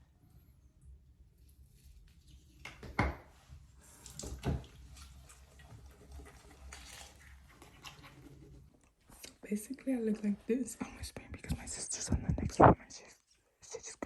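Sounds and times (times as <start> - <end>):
toothbrush scrubbing: 3.8 - 8.8.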